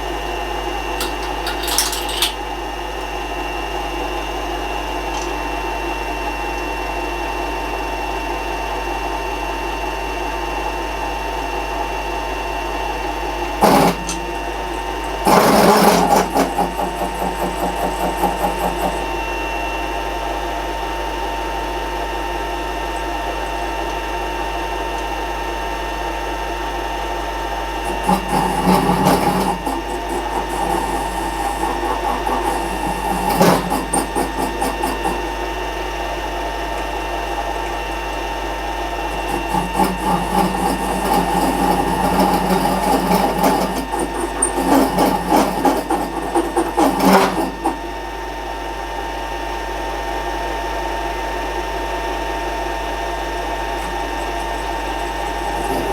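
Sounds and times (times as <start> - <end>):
electric motor whine: 10.6 - 25.2, 26.9 - 50.2, 50.8 - 55.9.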